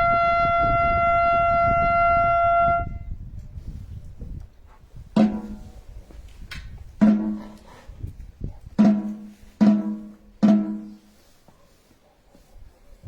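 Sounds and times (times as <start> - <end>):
marching drum strokes: 5.2 - 5.9, 7.0 - 7.6, 8.8 - 11.2.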